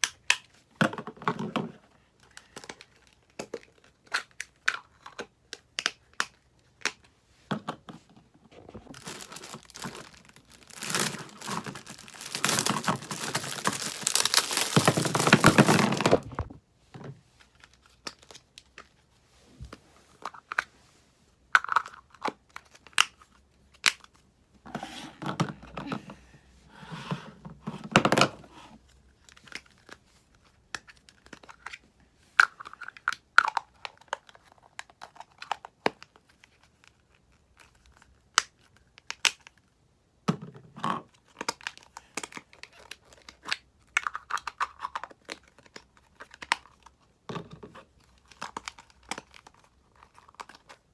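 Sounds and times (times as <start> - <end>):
packaging tearing and crinkling: 8.9 - 16.5.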